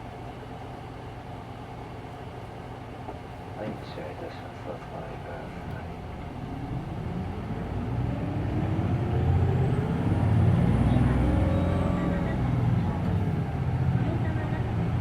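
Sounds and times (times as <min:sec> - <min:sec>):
bus engine accelerating: 0:04.6 - 0:15.0.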